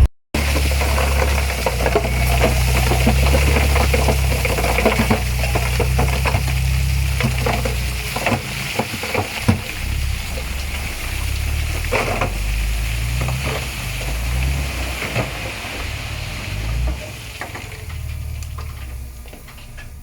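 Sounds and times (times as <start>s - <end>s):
heavy diesel engine under load: 0.0s - 20.0s.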